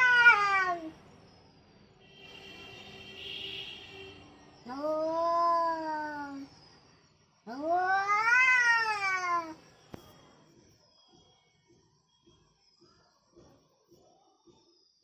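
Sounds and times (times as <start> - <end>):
cat yowling angrily: 0.0 - 0.9, 4.7 - 6.4, 7.5 - 9.6.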